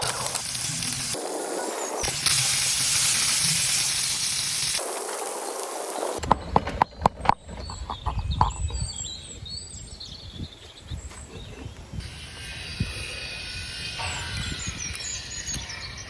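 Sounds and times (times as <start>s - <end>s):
birds chirping: 5.3s - 16.0s.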